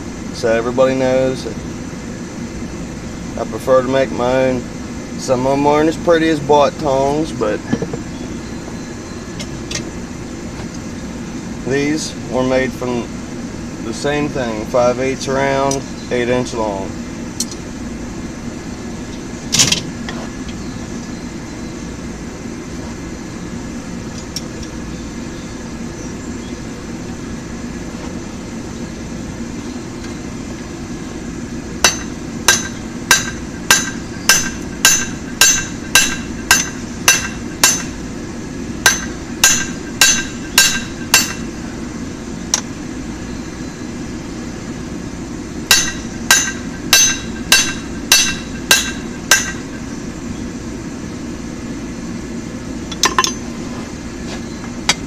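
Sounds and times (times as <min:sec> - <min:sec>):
steady low hum: 0:00.0 - 0:55.0
hammer striking steel on anvil: 0:31.8 - 0:38.0, 0:38.8 - 0:41.5, 0:45.7 - 0:49.8
single metal clank: 0:52.9 - 0:53.4.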